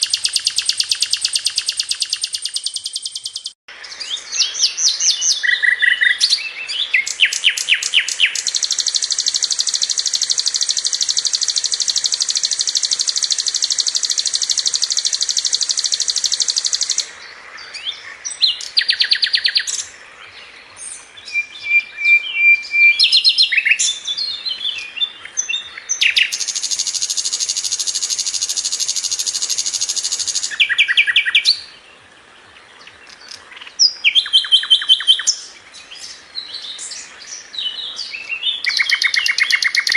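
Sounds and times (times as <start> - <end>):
bird chattering and whistling: 0.0 - 3.6, 4.4 - 17.1, 25.4 - 31.6, 33.3 - 35.4, 38.6 - 39.9
bird singing high trills: 0.0 - 20.0, 20.8 - 31.8, 33.0 - 39.9.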